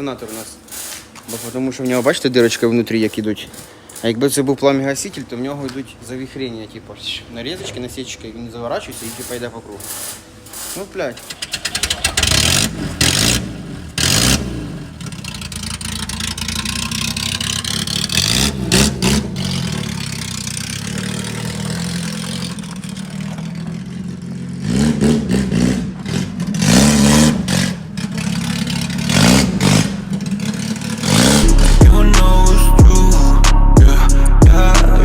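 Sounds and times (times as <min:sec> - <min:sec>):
car engine idling and revving: 0:11.2 - 0:35.0.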